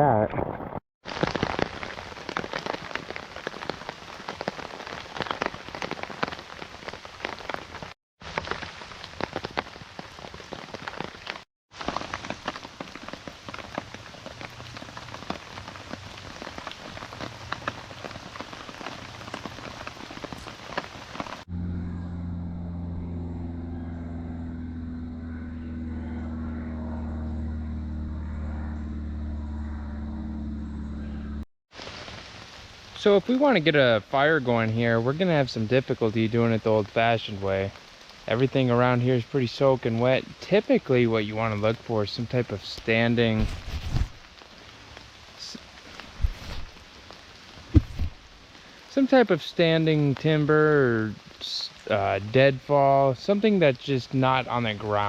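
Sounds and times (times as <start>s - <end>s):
steady rain: 1.0s - 21.5s, 31.7s - 55.0s
low drone of held tones: 21.5s - 31.4s.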